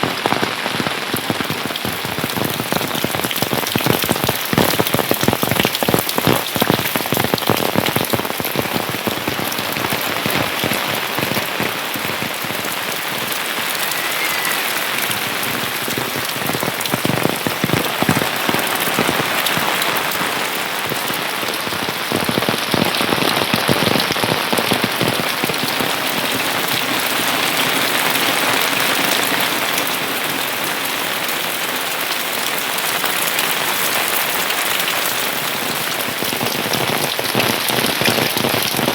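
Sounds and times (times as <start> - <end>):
rain falling: 0.0 - 38.9
raindrops tapping: 0.0 - 38.9.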